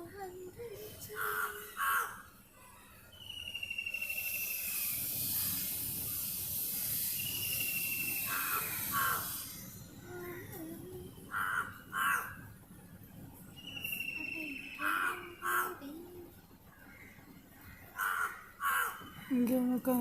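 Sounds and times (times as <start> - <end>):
bird trilling: 1.0 - 12.4, 13.6 - 16.0, 16.9 - 19.4
faint caws: 1.1 - 3.0, 8.2 - 9.4, 11.3 - 12.4, 14.8 - 15.8, 16.8 - 19.3
insects shrilling: 3.2 - 12.2.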